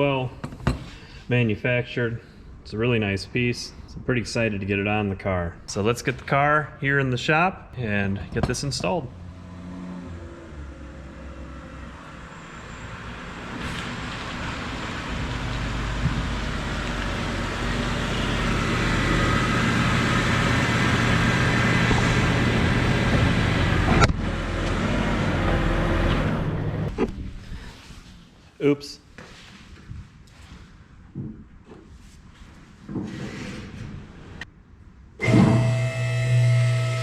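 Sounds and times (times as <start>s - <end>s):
car engine running: 16.8s - 27.0s.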